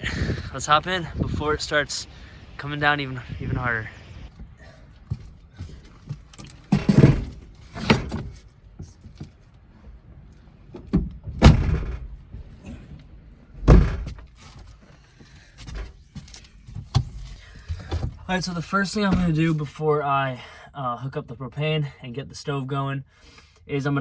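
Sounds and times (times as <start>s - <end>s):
tailgate thumps and slams: 6.7s - 8.4s, 10.8s - 12.2s, 13.6s - 14.3s.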